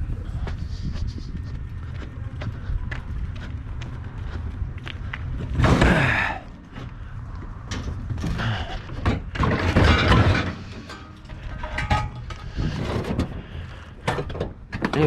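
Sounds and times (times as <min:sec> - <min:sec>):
scrap metal clattering and banging: 0:05.4 - 0:15.0.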